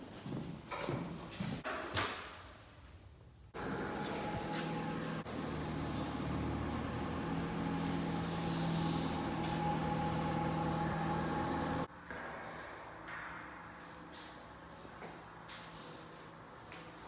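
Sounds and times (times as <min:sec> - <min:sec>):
motor humming: 0:03.6 - 0:11.9.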